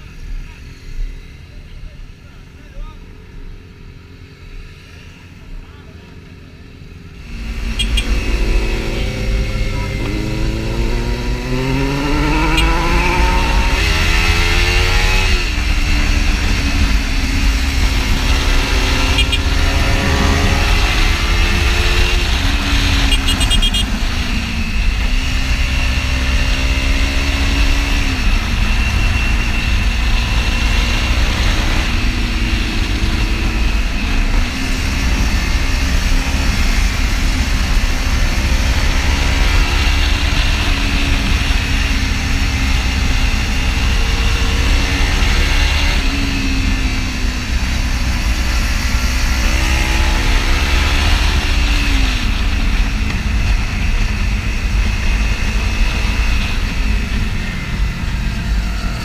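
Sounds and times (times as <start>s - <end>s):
motorcycle engine upshifting: 7.3s - 30.4s.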